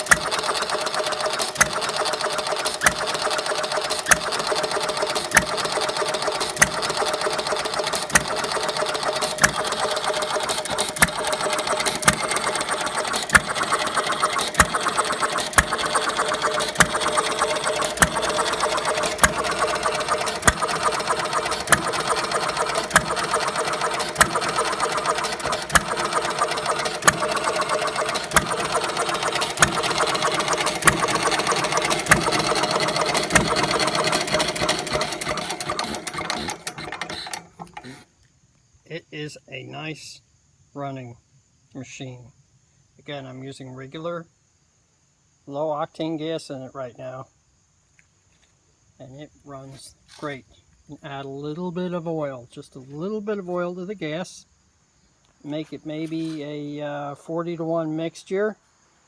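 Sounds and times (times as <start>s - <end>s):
engine mechanical clatter: 0.0s - 38.0s.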